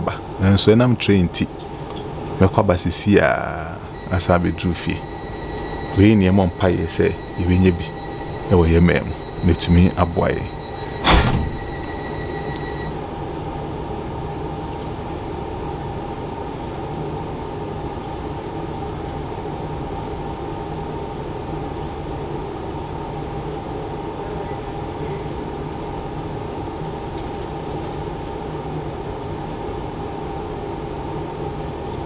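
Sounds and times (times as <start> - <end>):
train humming: 1.5 - 13.4
high beeping tone: 3.8 - 13.0.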